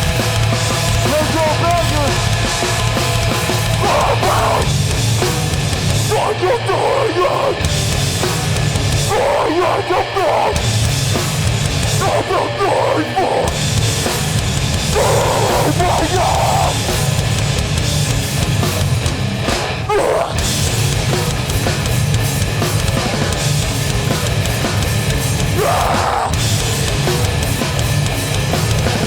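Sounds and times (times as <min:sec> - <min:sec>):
distorted guitars and bass: 0:00.0 - 0:29.0
pounding drums: 0:00.0 - 0:29.0
shouted vocals: 0:03.7 - 0:04.7, 0:06.0 - 0:07.7, 0:09.0 - 0:10.7, 0:11.9 - 0:13.6, 0:14.9 - 0:16.9, 0:19.9 - 0:20.5, 0:25.4 - 0:26.4.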